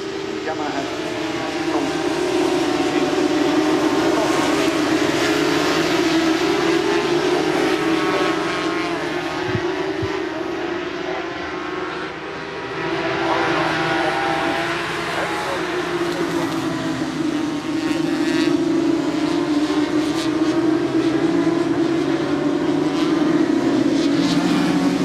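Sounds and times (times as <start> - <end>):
racing motorcycle engines revving: 0.0 - 25.0.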